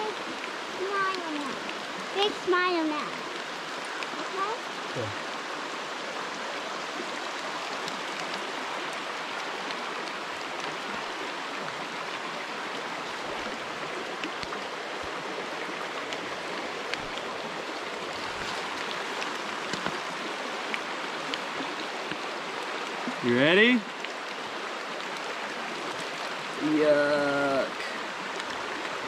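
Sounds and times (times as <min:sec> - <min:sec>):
creek water rushing: 0:00.0 - 0:29.0.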